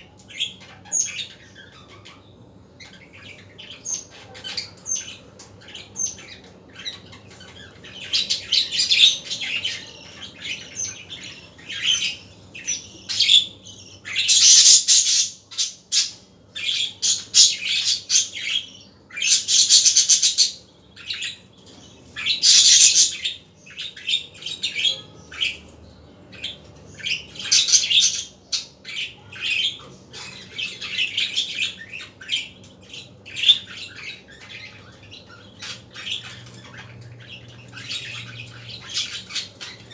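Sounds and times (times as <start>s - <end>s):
budgerigars chirping and warbling: 0.0s - 39.9s.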